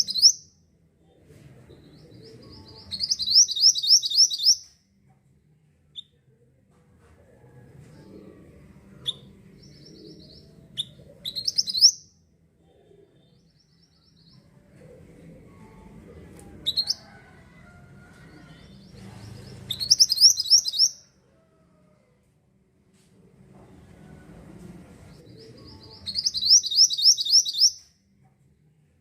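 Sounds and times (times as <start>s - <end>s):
bird chirping: 0.0s - 0.5s, 2.4s - 4.7s, 9.1s - 12.1s, 19.6s - 21.0s, 25.5s - 27.9s.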